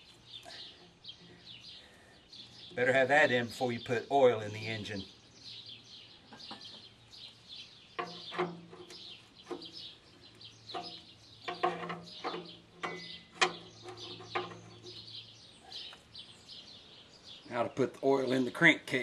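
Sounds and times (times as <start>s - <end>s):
small birds chirping: 0.0s - 19.0s
knocks and clanks: 8.0s - 9.8s, 10.7s - 15.0s.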